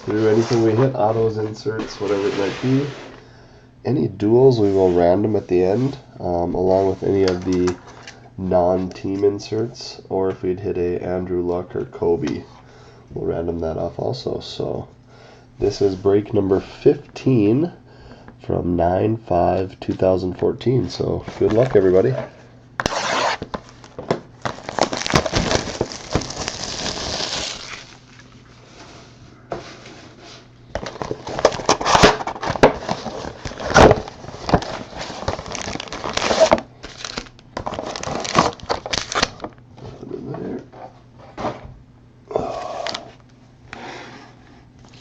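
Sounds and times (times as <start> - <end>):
plastic wrapping torn and crinkled: 22.8 - 28.4, 30.8 - 39.6.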